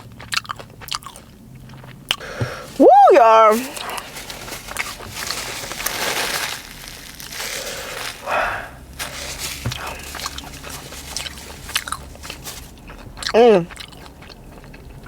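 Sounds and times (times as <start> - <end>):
person chewing: 0.0 - 15.0
breathy puffs of air: 2.2 - 2.9, 6.5 - 11.0.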